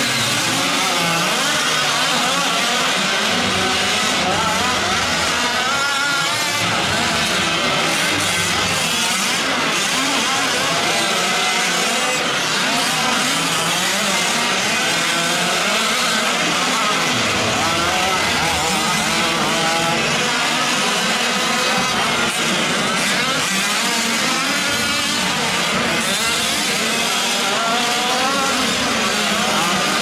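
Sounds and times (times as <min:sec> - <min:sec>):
small two-stroke engines revving: 0:00.0 - 0:30.0.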